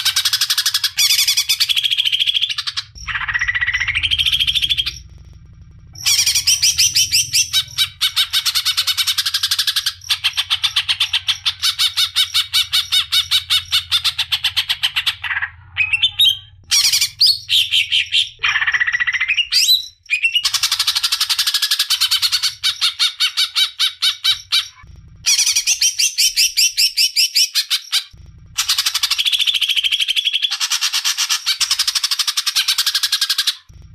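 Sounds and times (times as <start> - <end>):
bird singing rapid high notes: 6.0 - 27.8.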